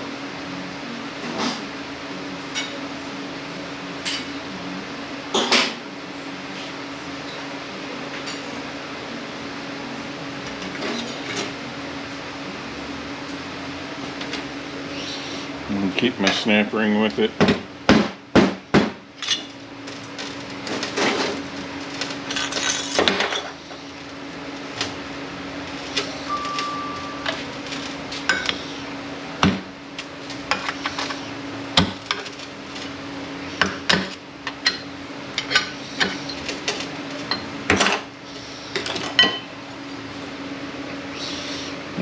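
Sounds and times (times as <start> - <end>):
low shop hum: 0.0 - 42.0
metal parts clinking: 22.2 - 23.6.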